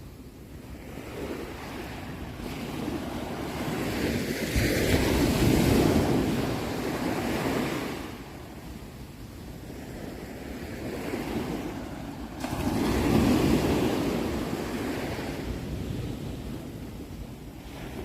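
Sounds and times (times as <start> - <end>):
ocean wave washing in: 10.1 - 18.0.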